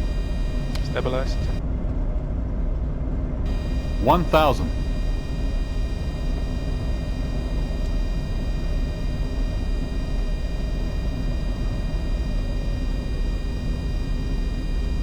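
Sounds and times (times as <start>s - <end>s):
faint high tones: 0.0s - 1.6s, 3.5s - 15.0s
jet cockpit rumble: 0.0s - 1.6s, 3.5s - 15.0s.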